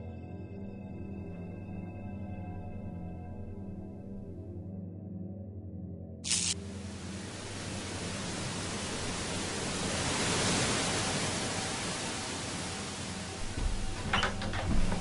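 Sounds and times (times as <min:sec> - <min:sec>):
rushing hiss of noise: 0:06.2 - 0:14.2.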